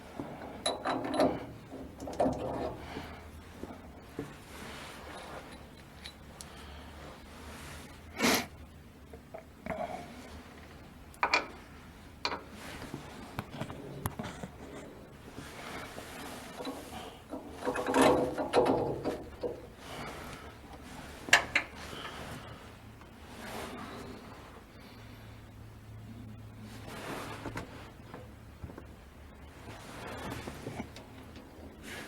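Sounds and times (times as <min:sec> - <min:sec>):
knocks and scrapes on metal fittings: 0:00.1 - 0:06.2, 0:11.2 - 0:11.6, 0:12.2 - 0:20.0.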